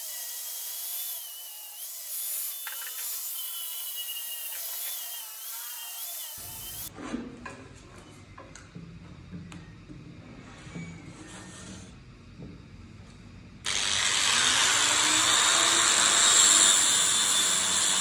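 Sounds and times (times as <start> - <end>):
power tool whining on wood: 0.0 - 6.9, 13.7 - 18.0.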